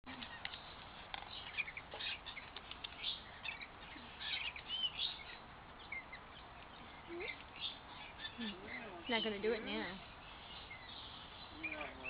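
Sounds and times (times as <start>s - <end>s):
birds chirping and squawking: 0.1s - 12.0s.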